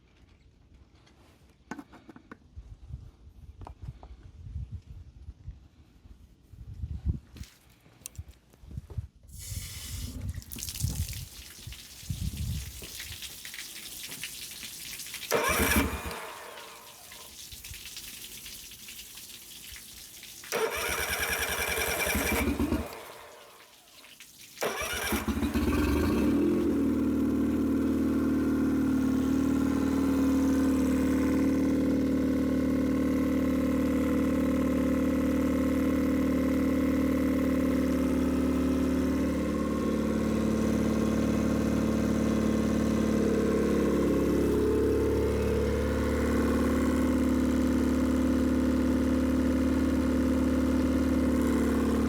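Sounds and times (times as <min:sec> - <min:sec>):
outboard engine starting and idling: 0:09.4 - 0:17.8, 0:20.4 - 0:52.0.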